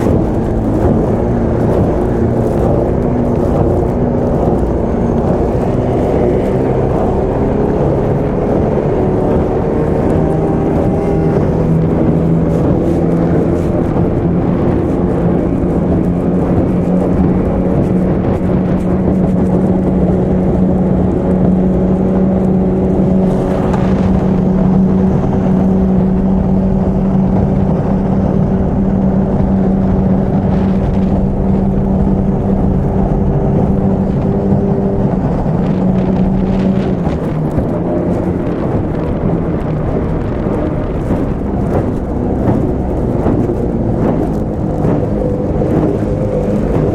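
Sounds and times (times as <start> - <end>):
outboard motor running at speed: 0.0 - 46.9
rushing water noise: 0.0 - 46.9.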